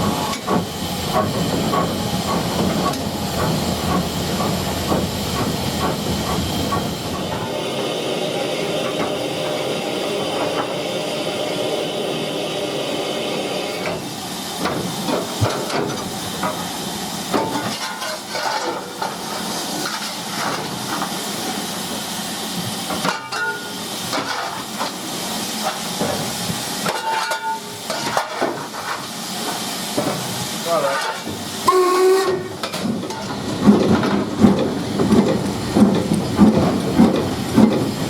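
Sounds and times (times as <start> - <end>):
steam locomotive hissing: 0.0 - 38.0
metal clanks and knocks: 22.9 - 25.0, 25.6 - 30.3, 30.9 - 38.0.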